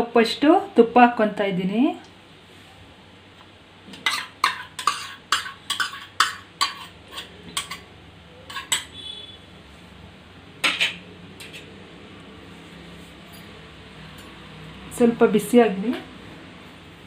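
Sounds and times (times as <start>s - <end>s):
metal spoon clinking on metal: 4.0s - 7.9s, 8.5s - 9.0s, 13.3s - 14.4s.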